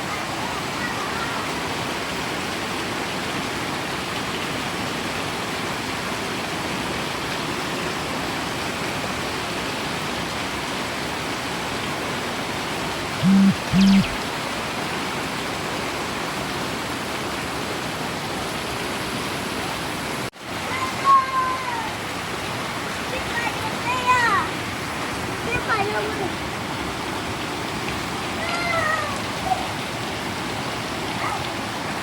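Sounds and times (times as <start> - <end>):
heavy rain falling: 0.0 - 13.0, 14.3 - 32.0
short low beeps: 13.2 - 14.2.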